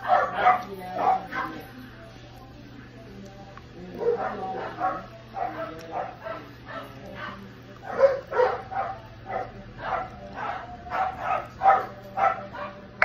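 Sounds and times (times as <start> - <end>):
wet chewing and lip-smacking: 3.1 - 8.7.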